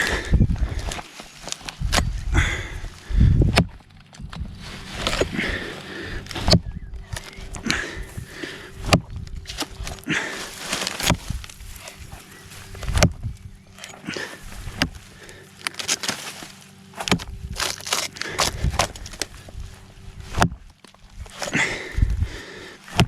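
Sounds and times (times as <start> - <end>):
handling noise: 0.0 - 22.1
footsteps: 7.2 - 19.8.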